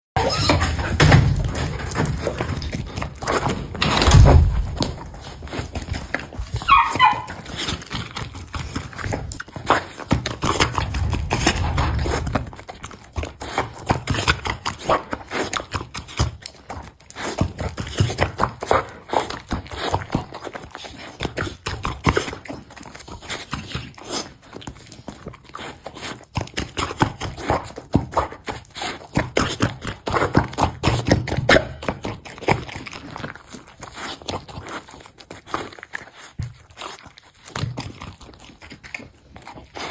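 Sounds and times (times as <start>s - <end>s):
dog chewing and smacking: 0.2s - 39.9s
dull thump: 3.8s - 5.0s.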